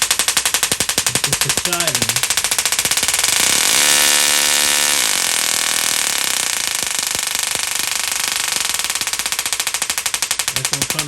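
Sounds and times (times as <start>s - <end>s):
tesla coil spark buzzing: 0.0s - 11.0s.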